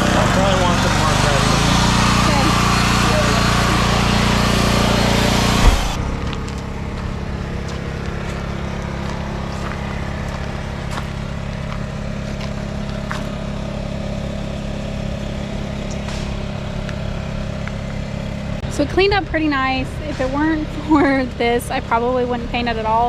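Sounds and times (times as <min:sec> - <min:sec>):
engine idling: 0:00.0 - 0:23.0
thump: 0:05.6 - 0:06.6.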